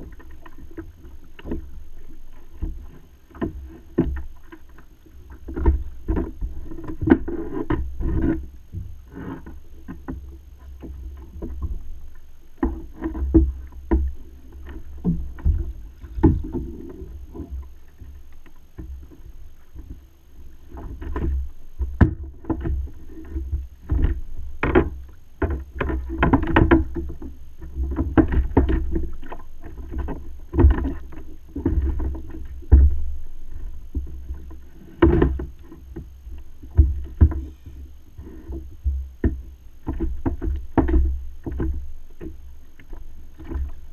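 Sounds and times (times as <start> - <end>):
water sloshing around kayak: 0.0 - 43.9
knocks against hull: 5.4 - 8.9, 12.6 - 17.7, 20.7 - 33.0, 34.9 - 43.8.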